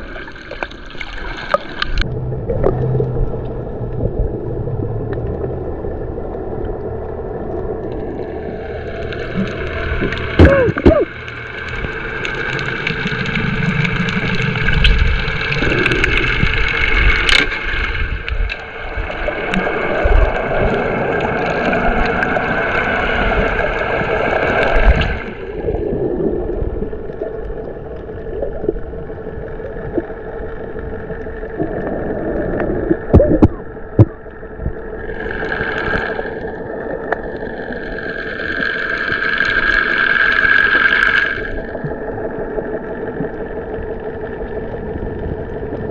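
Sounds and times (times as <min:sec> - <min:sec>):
water sloshing and gurgling: 0:00.0 - 0:45.9
steady hum: 0:01.6 - 0:45.9.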